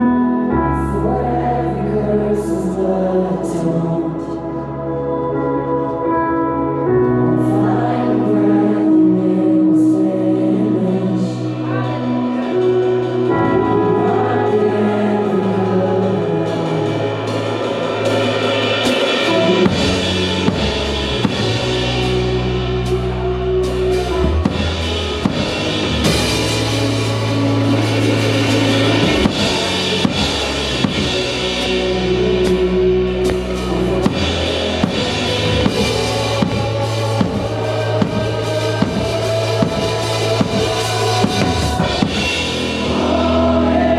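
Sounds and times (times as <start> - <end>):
bass: 0.0 - 43.9
keyboard chords: 0.0 - 43.9
drum kit beat: 16.8 - 43.9.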